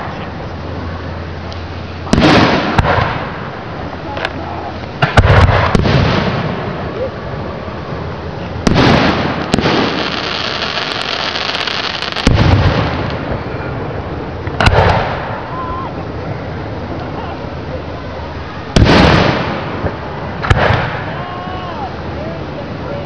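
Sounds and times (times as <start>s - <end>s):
sharp firework cracks: 1.5s - 3.6s, 5.0s - 7.1s, 8.6s - 13.5s, 14.5s - 15.6s, 18.7s - 21.4s
firework shells booming: 2.0s - 4.4s, 5.0s - 7.0s, 8.6s - 13.5s, 14.4s - 15.5s, 18.7s - 21.2s.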